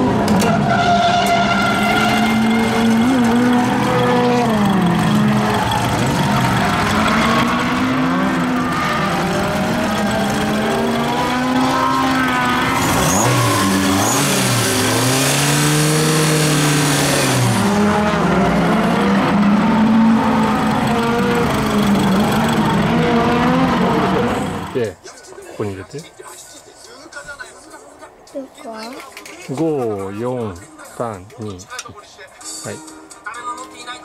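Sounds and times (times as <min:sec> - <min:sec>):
car engine revving: 0:00.0 - 0:24.8.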